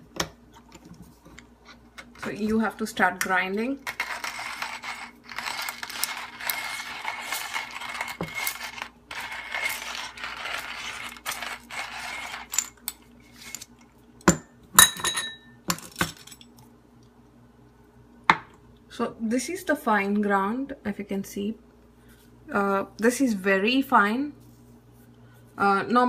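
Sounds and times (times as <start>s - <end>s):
hand grinder crunching coffee beans: 3.8s - 12.6s.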